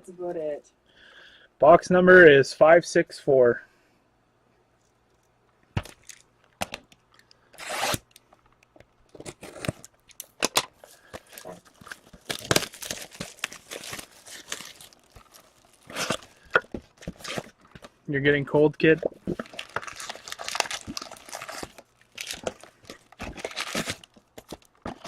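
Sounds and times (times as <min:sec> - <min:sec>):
plastic wrapping tearing and crinkling: 0:07.6 - 0:08.2, 0:09.1 - 0:17.9, 0:19.3 - 0:25.0.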